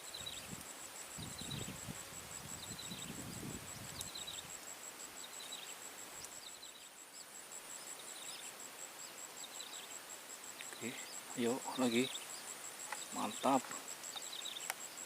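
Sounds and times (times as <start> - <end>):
insect pulsing buzz: 0.0 - 15.0
small bird chirping: 2.4 - 4.6, 5.2 - 15.0.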